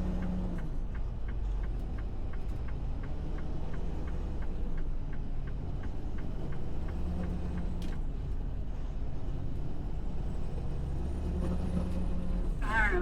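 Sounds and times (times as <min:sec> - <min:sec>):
turn signal ticking: 0:00.0 - 0:08.0
truck engine rumbling: 0:00.0 - 0:13.0.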